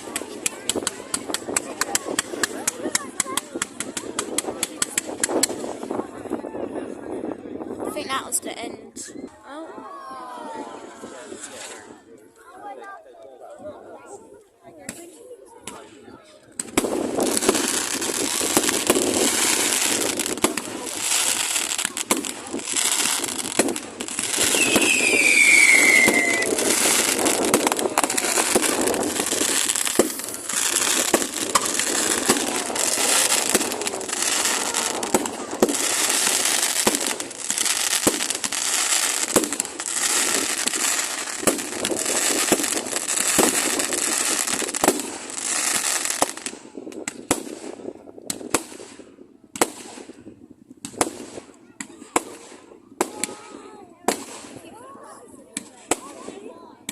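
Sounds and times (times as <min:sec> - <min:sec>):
fireworks bangs and crackling: 0:00.0 - 0:09.2, 0:10.4 - 0:12.0, 0:14.8 - 0:56.9
falling firework whistle: 0:24.4 - 0:27.2.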